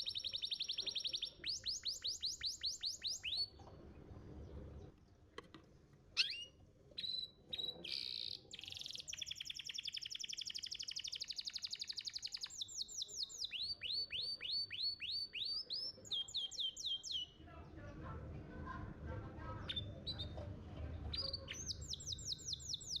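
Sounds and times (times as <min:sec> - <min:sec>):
canary singing: 0:00.0 - 0:03.6, 0:06.2 - 0:17.4, 0:19.6 - 0:20.4, 0:21.0 - 0:23.0.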